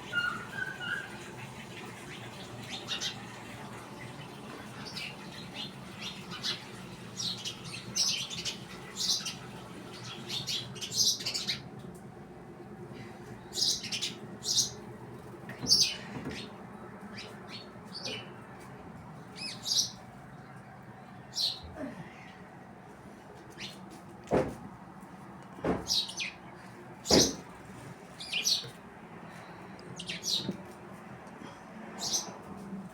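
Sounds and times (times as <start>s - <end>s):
birds chirping: 0.0s - 11.8s, 13.0s - 18.6s, 19.2s - 22.4s, 25.8s - 27.5s, 28.1s - 30.6s.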